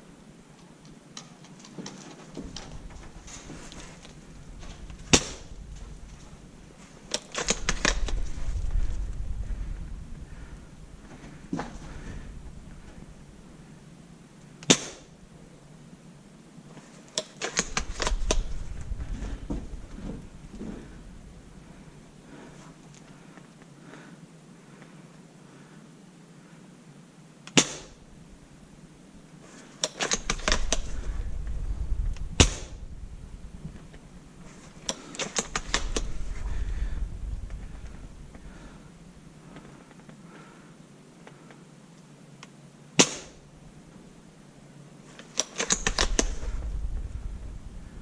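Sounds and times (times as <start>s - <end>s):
airsoft guns firing: 5.1s - 5.6s, 14.6s - 15.1s, 27.5s - 28.0s, 32.4s - 32.8s, 43.0s - 43.4s.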